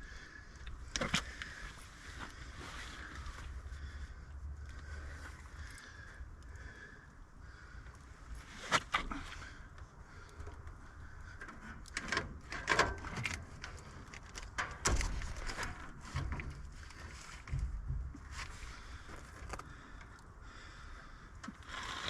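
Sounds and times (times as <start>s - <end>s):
scattered clicks and knocks: 11.4s - 16.6s.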